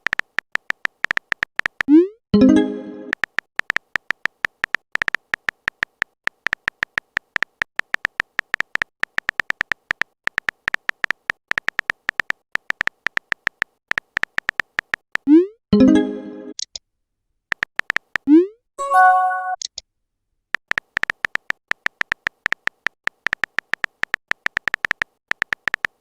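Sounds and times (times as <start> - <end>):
short electronic beeps: 18.8 - 19.6.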